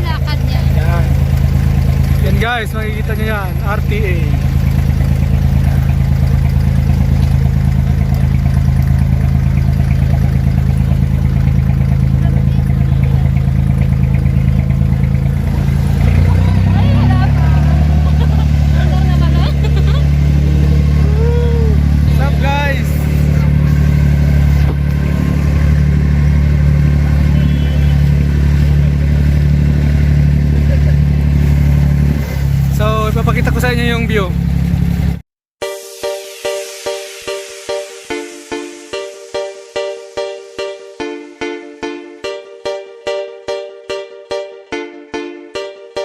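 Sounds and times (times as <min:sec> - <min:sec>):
boat engine idling: 0:00.0 - 0:35.2.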